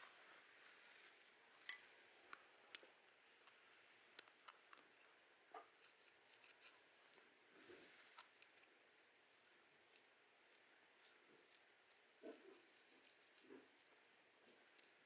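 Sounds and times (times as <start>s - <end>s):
sharp clicks and light scratching: 0.9s - 7.3s, 8.0s - 8.8s, 9.4s - 15.0s.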